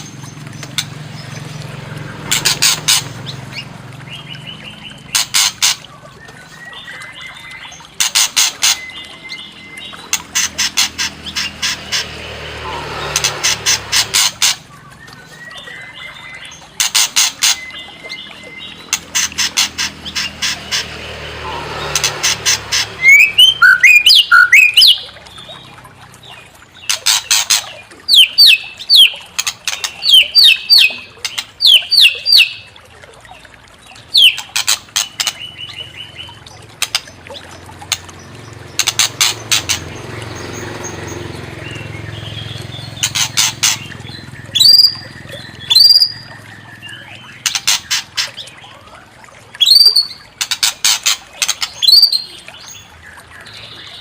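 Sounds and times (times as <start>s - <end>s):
songbird singing trills and whistles: 6.0s - 10.6s, 23.0s - 25.7s, 26.3s - 32.8s, 33.9s - 36.6s, 41.2s - 49.0s, 49.6s - 50.6s, 51.6s - 54.0s.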